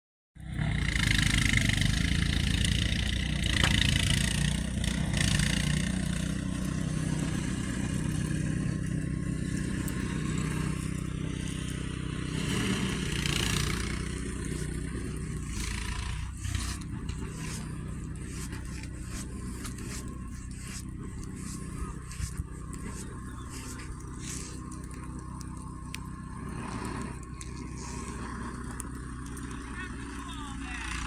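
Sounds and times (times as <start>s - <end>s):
vehicle engine humming: 0.4s - 31.0s.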